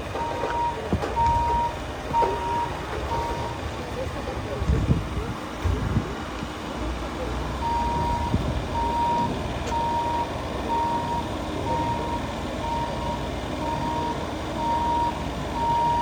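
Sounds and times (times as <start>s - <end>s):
vehicle engine rumble: 0.0s - 16.0s
reversing alarm beeps: 0.2s - 3.6s, 7.6s - 16.0s.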